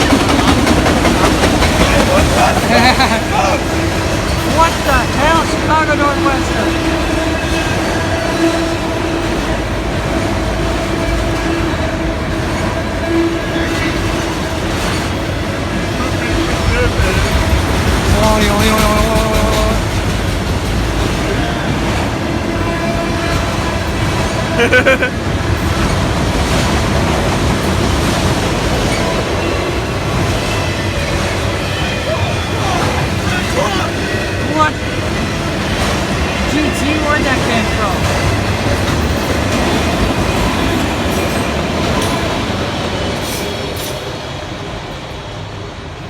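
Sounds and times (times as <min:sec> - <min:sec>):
freight train rumbling on rails: 0:00.0 - 0:46.0.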